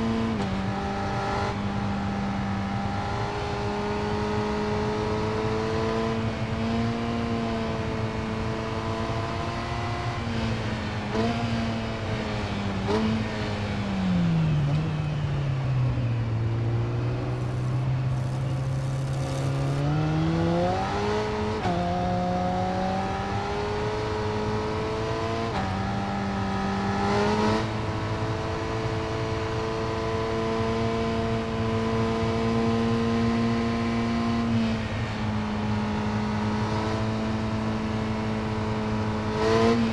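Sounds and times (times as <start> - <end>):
motorcycle engine revving: 17.1 - 39.9.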